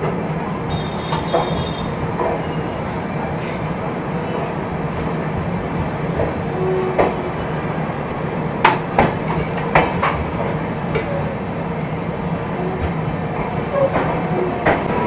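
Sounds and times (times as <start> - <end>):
train wheels rumbling on rails: 0.0 - 15.0
wheels clacking over rail joints: 0.0 - 15.0.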